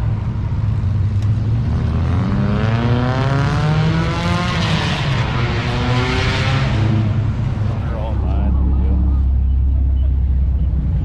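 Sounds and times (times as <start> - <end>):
car engine accelerating: 0.0 - 11.0
steady low drone: 7.1 - 11.0.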